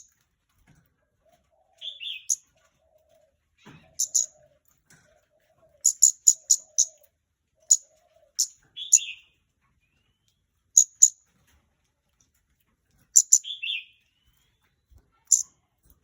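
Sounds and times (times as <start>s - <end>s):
dove cooing faintly: 0.9s - 9.2s
bird high ticking calls: 3.9s - 4.3s, 5.8s - 7.0s, 8.4s - 9.2s, 10.8s - 11.2s, 13.2s - 13.7s.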